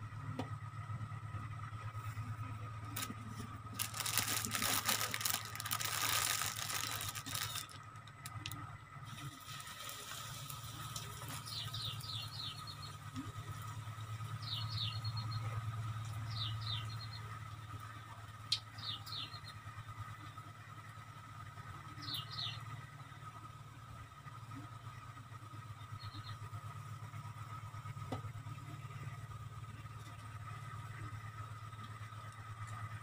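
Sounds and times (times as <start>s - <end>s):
dense crackling: 3.0s - 8.6s.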